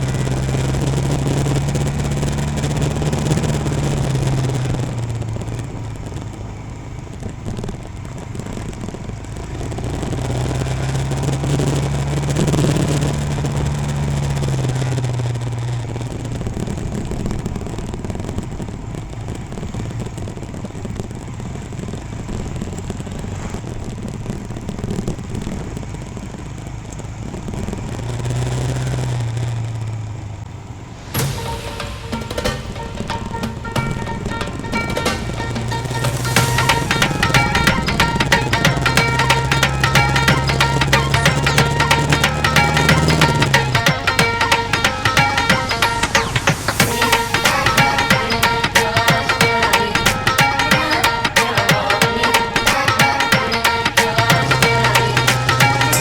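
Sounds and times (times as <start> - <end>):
wind and road noise: 0.0 - 32.4.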